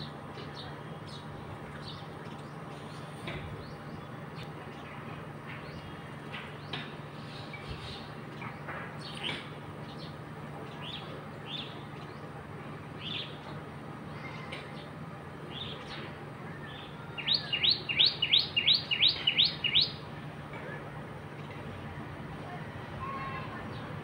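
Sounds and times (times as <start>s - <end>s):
birds chirping: 14.6s - 21.8s.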